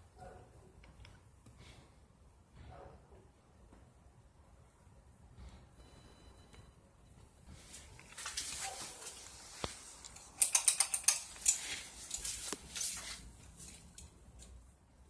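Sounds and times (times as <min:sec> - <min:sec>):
mechanical clicks and rattles: 0:10.0 - 0:12.6.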